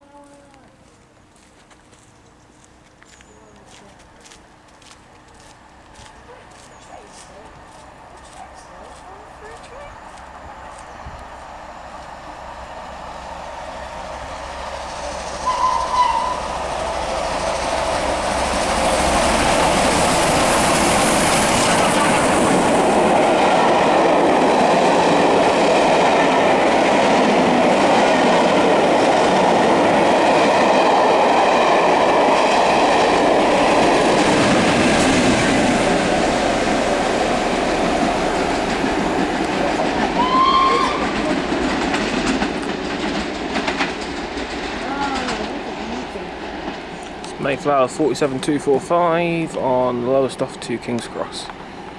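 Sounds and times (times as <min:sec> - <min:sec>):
train wheels clattering over rail joints: 0:13.2 - 0:48.8
rising squeal: 0:14.7 - 0:17.7
steam locomotive whistle toots: 0:14.9 - 0:17.8, 0:39.1 - 0:41.4.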